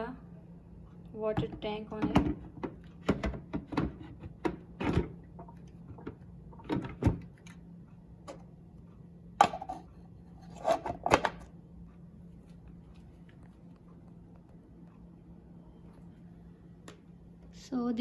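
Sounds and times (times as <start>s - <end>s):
plastic tank knocking and clunking: 1.3s - 7.3s.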